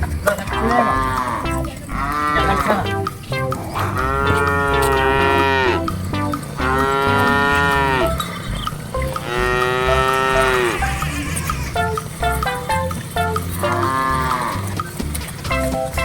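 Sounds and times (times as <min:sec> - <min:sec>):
cattle mooing: 0:00.3 - 0:11.8, 0:13.6 - 0:14.9.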